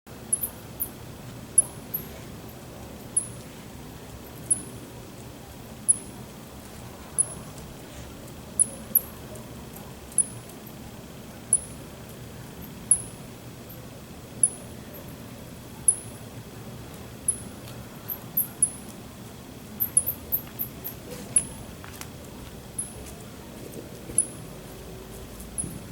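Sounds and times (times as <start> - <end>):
bat chirping: 0.3 - 0.9, 4.4 - 4.7, 5.9 - 6.1, 11.5 - 11.8, 15.9 - 16.1, 19.8 - 20.4.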